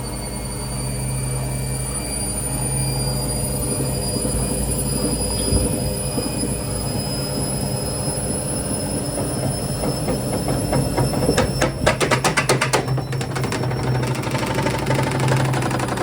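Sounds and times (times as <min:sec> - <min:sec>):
washing machine spinning: 0:00.0 - 0:16.0
rapid knocking rattle: 0:09.0 - 0:16.0.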